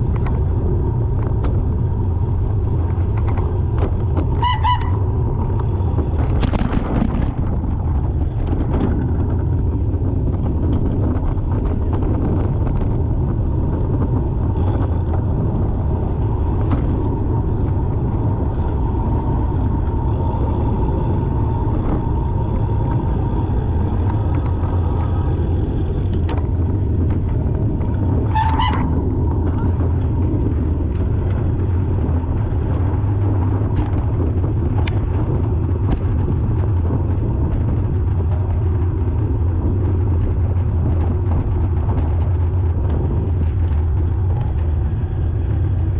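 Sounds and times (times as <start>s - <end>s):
car engine rumble: 0.0s - 45.9s
road noise: 0.0s - 45.9s
high-pitched car horn honk: 4.4s - 5.0s.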